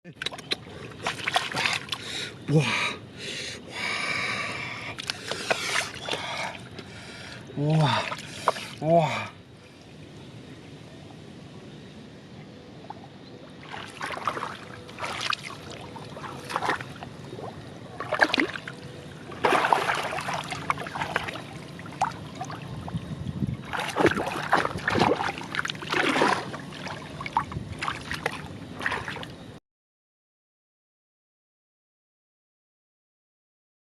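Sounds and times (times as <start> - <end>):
shallow water splashing: 0.3 - 2.1, 12.9 - 29.4.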